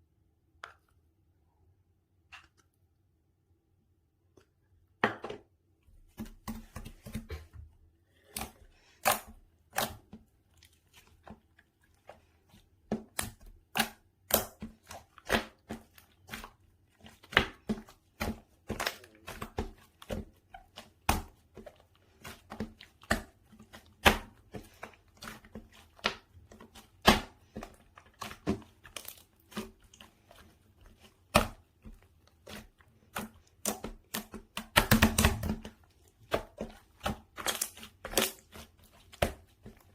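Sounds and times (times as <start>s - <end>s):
slime squished by hand: 8.2s - 39.9s.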